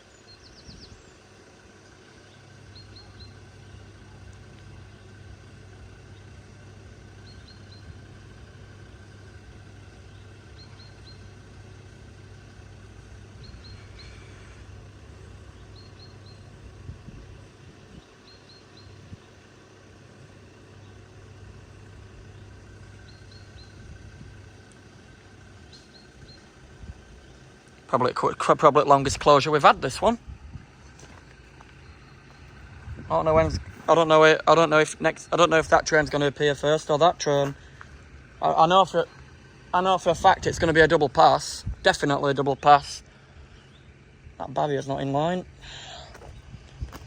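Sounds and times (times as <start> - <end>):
small bird chirping: 0.0 - 1.4, 2.0 - 19.5, 22.1 - 27.8, 30.3 - 34.0, 42.6 - 44.0
steady low hum: 0.0 - 47.0.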